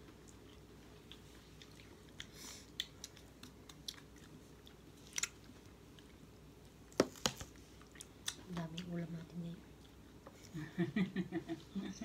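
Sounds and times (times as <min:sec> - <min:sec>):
faint wet chewing: 0:00.0 - 0:09.1.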